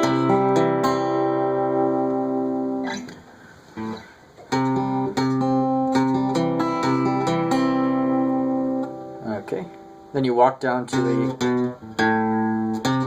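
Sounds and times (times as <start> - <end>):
fingerpicked acoustic guitar: 0.0 - 13.0.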